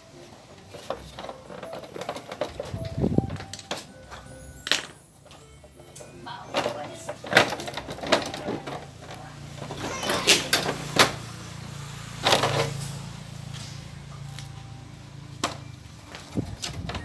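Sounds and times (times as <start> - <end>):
knocks and clicks of motorbike parts: 15.4 - 17.0.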